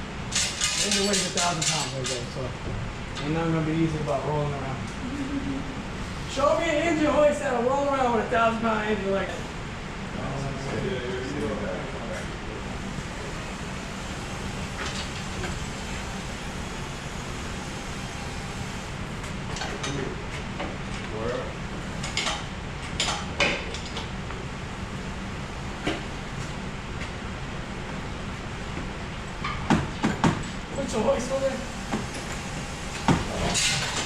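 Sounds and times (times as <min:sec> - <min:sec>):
engine hoist rolling rumble: 0:12.4 - 0:27.5, 0:30.5 - 0:34.0.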